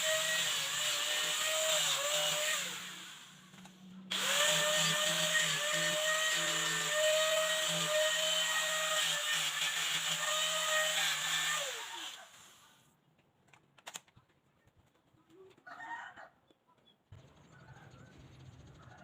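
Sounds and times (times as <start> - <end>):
power tool whining and spinning down: 0.0 - 12.7.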